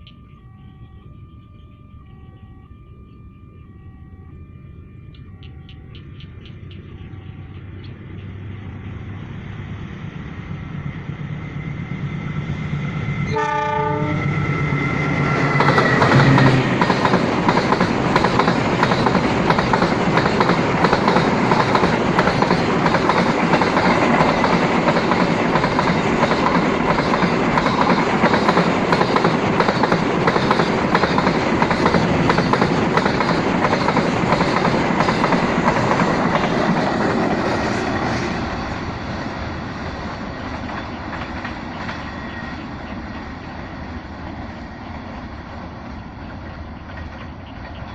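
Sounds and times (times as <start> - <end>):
train horn: 13.2 - 16.8
train wheels clicking over rail joints: 15.1 - 38.8, 39.9 - 43.5.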